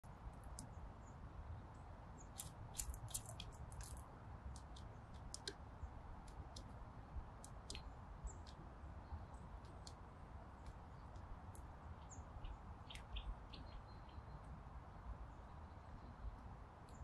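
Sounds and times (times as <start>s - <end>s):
birds chirping: 11.8s - 14.5s.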